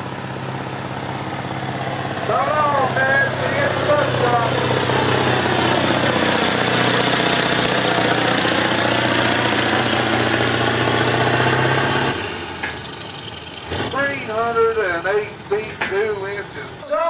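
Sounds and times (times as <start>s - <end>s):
diesel truck engine under load: 0.0s - 17.0s.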